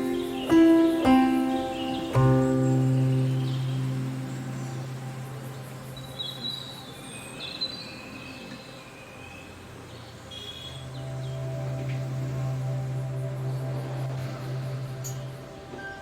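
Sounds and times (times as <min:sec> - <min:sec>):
birds chirping: 0:00.0 - 0:16.0
steady low hum: 0:11.0 - 0:15.8.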